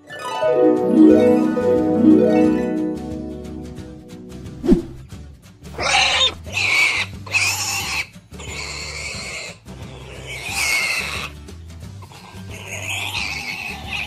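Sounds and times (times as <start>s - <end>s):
background music with low bass: 0.7s - 13.1s
cartoon pig calls: 5.7s - 11.4s, 12.2s - 14.0s.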